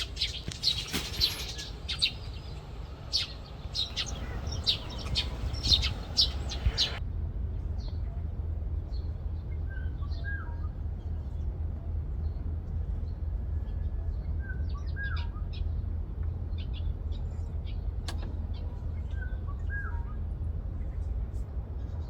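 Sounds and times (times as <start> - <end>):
birds chirping: 0.0 - 7.0, 12.2 - 21.1
steady low rumble: 0.0 - 22.0.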